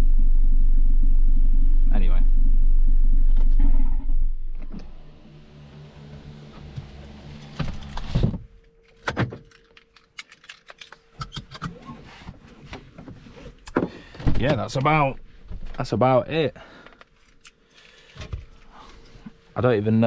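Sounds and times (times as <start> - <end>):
car engine running down: 0.0 - 8.2
low hum: 0.0 - 12.0.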